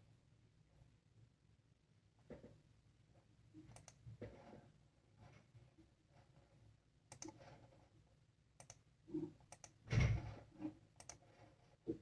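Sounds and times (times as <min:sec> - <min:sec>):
faint computer mouse clicks: 0:03.7 - 0:04.0, 0:07.1 - 0:07.4, 0:08.6 - 0:08.8, 0:09.5 - 0:09.8, 0:11.0 - 0:11.2.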